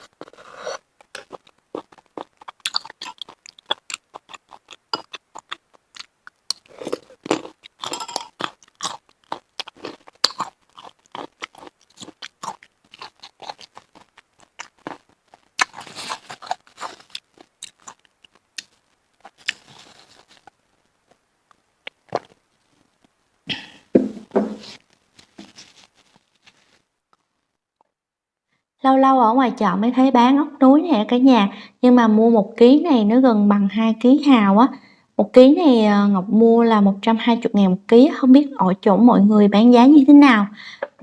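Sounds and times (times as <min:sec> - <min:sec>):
crunchy chewing: 0:00.0 - 0:22.4.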